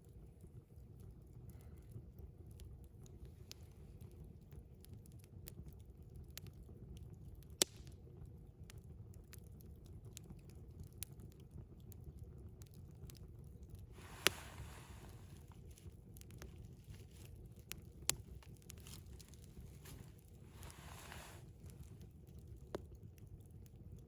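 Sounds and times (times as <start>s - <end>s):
campfire crackling: 0.0s - 24.0s
brief hiss: 20.6s - 21.5s.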